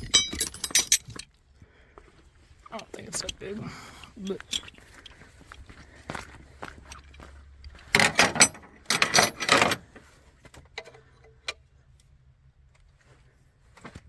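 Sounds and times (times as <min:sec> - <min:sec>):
metal hand tools clinking: 0:00.0 - 0:01.3.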